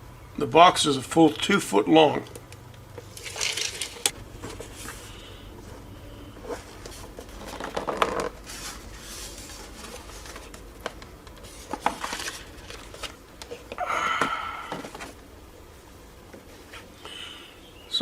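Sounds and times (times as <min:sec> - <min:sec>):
package rustling and knocking: 0:06.6 - 0:15.2.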